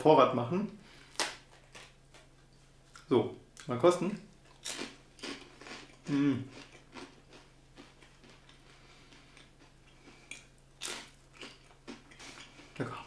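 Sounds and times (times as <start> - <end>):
crisp waffle crunching: 4.5 - 12.8
person humming mm: 6.1 - 6.5.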